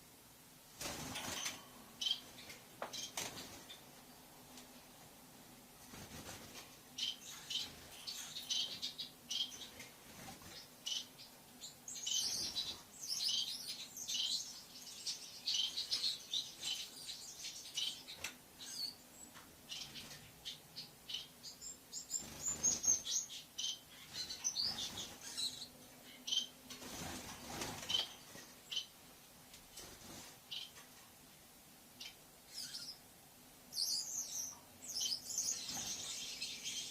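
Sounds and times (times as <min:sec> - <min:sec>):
lovebird chirping: 0:07.0 - 0:09.8, 0:10.6 - 0:26.6, 0:32.0 - 0:33.0, 0:33.7 - 0:36.9.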